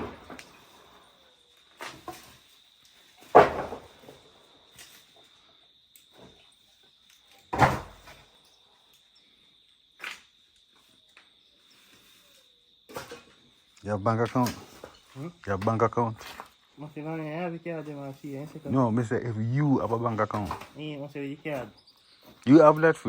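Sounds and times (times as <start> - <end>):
loud construction bangs: 0.0 - 0.4
high insect drone: 8.3 - 23.0.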